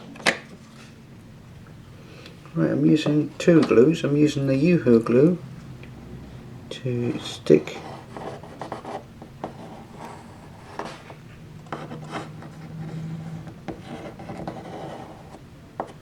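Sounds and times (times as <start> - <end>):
rubbing and scraping: 7.0 - 16.0.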